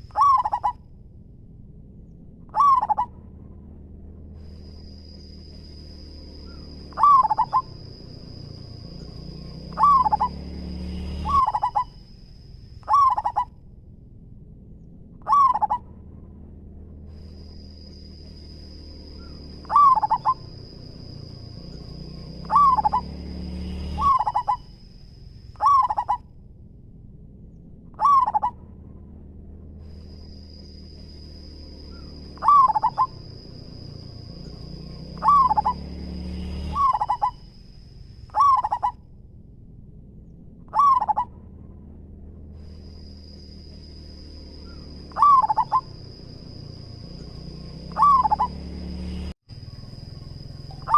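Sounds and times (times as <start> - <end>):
dove cooing: 0.0 - 0.8, 2.5 - 3.1, 6.4 - 8.4, 9.6 - 10.4, 11.1 - 12.0, 12.8 - 13.5, 15.2 - 15.8, 19.2 - 21.2, 22.4 - 23.2, 23.9 - 24.7, 25.6 - 26.2, 28.0 - 28.6, 31.9 - 33.8, 35.1 - 35.9, 36.7 - 37.4, 38.3 - 39.0, 40.7 - 41.3, 44.7 - 46.0, 47.9 - 48.6.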